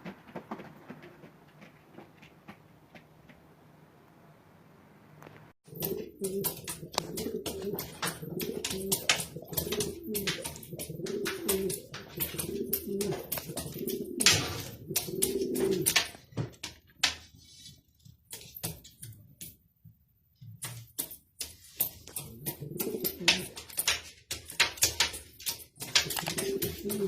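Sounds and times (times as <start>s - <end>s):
sharp taps and clicks: 5.2s - 17.2s, 20.4s - 27.0s
pigeons cooing: 5.7s - 16.1s, 22.1s - 23.8s, 25.8s - 27.0s.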